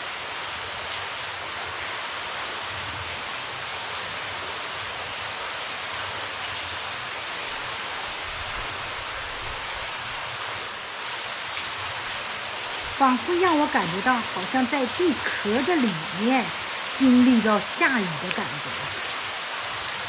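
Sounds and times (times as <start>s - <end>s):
water streaming from cave ceiling: 0.0s - 20.0s
faint water drips: 11.6s - 19.1s.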